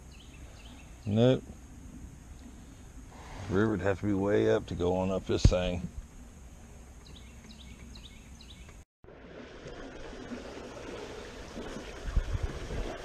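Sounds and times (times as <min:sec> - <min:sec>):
small bird chirping: 0:07.0 - 0:08.8.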